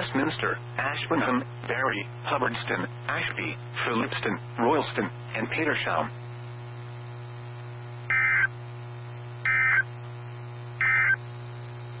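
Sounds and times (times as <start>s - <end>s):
steady low hum: 0.0s - 12.0s
harsh two-tone digital bursts: 8.1s - 8.5s, 9.5s - 9.8s, 10.8s - 11.2s.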